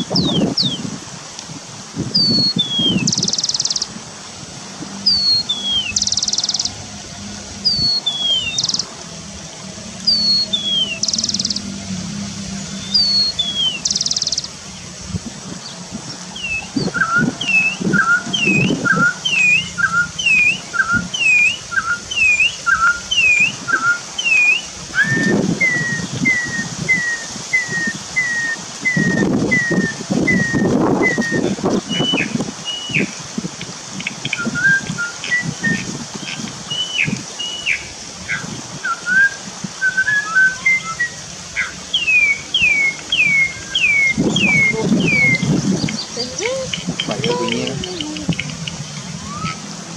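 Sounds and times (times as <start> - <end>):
songbird whistling: 0.0 - 0.8, 2.1 - 3.9, 5.0 - 6.8, 7.6 - 8.9, 10.0 - 11.8, 12.7 - 14.5, 16.4 - 33.1, 34.3 - 48.5, 49.2 - 49.7
high buzzy bird bursts: 10.0 - 14.6.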